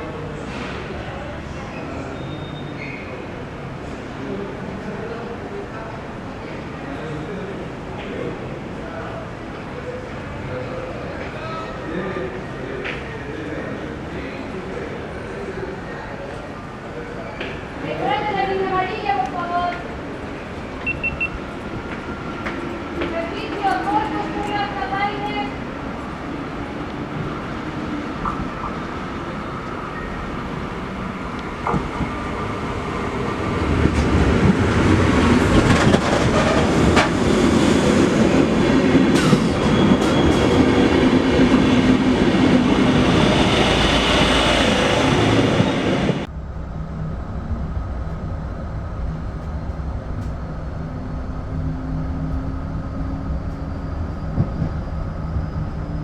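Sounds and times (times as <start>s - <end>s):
train wheels clattering on rails: 33.7s - 43.8s.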